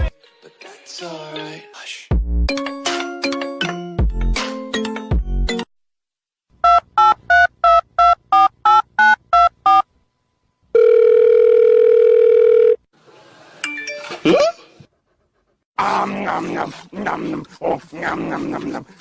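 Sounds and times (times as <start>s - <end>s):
telephone line tone: 10.7s - 12.9s.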